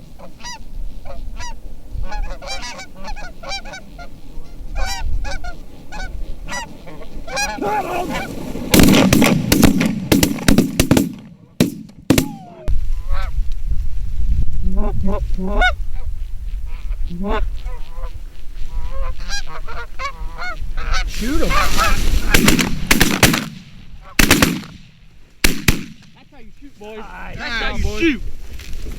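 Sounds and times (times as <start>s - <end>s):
geese honking: 0.1s - 9.5s, 14.7s - 16.1s, 16.7s - 24.7s
loud sharp cracks and thumps: 8.7s - 12.3s, 22.2s - 26.2s.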